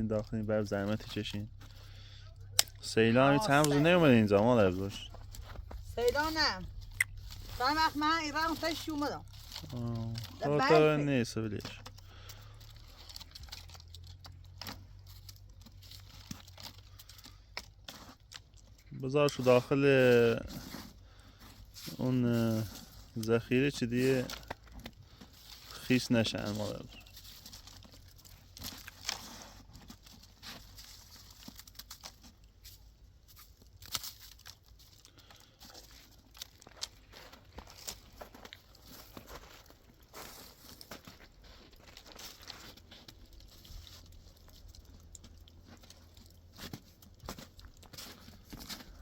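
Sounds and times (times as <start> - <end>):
steady low hum: 0.0 - 12.6
rustling and crinkling: 0.0 - 49.0.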